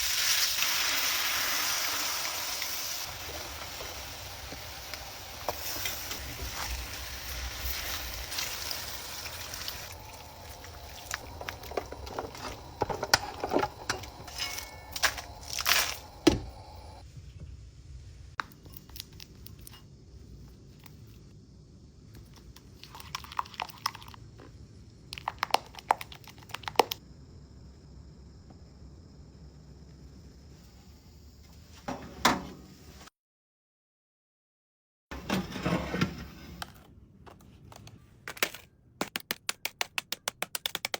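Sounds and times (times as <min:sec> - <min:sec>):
steady hiss: 0:00.0 - 0:14.2
clicks knocks and crinkling: 0:10.6 - 0:17.0, 0:36.6 - 0:40.9.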